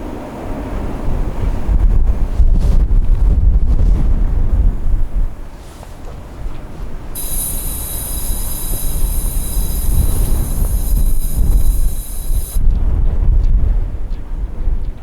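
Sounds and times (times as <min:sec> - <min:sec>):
wind buffeting microphone: 0:00.2 - 0:15.0
train wheels squealing: 0:07.2 - 0:12.6.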